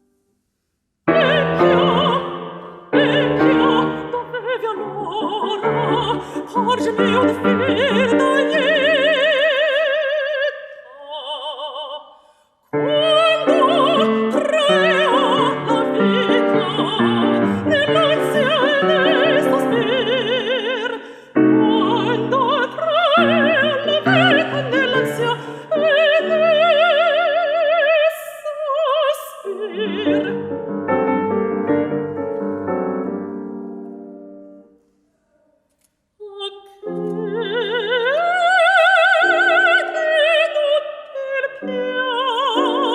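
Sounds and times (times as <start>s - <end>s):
piano accompaniment: 1.1s - 9.2s, 12.8s - 20.5s, 29.7s - 34.8s
woman singing operatically: 1.1s - 12.2s, 12.8s - 30.6s, 36.2s - 42.9s.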